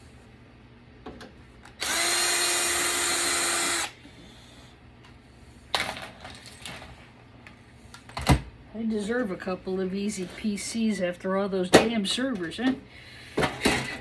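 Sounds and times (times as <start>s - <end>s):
power drill running: 1.8s - 4.0s.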